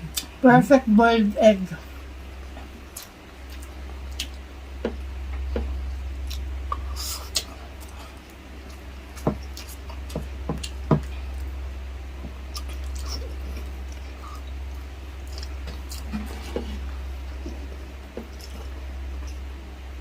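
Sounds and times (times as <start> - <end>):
steady low hum: 0.0 - 20.0
mouth clicks and smacks: 2.9 - 8.0.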